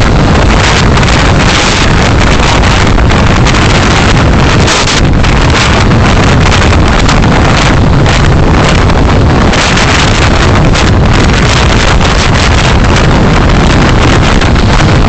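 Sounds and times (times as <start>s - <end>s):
road noise: 0.0s - 15.0s
wind buffeting microphone: 0.0s - 15.0s.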